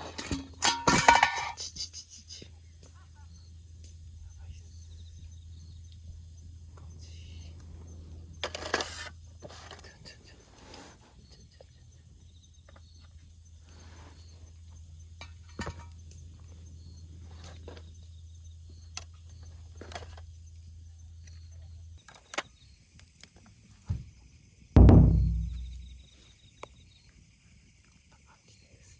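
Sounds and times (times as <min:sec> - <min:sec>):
insects trilling: 0:00.0 - 0:28.9
low hum: 0:02.6 - 0:08.6, 0:24.8 - 0:26.1.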